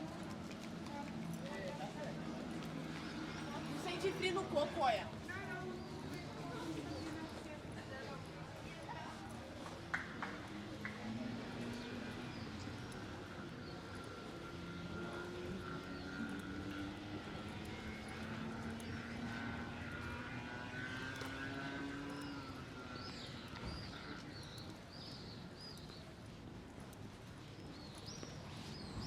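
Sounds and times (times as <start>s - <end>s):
engine droning: 10.3s - 24.4s.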